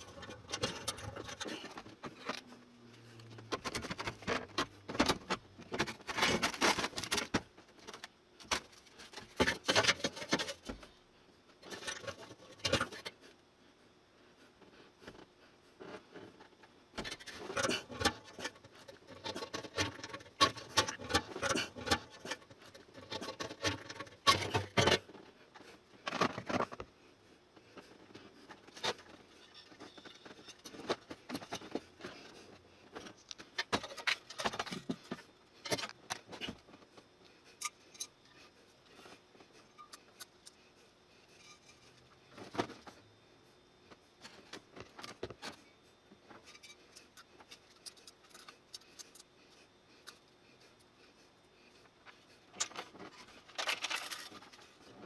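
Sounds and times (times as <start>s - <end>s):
metal parts and tools clattering: 0.0s - 2.6s, 3.3s - 10.8s, 11.6s - 13.1s, 17.0s - 25.1s, 33.0s - 36.6s, 52.6s - 54.8s.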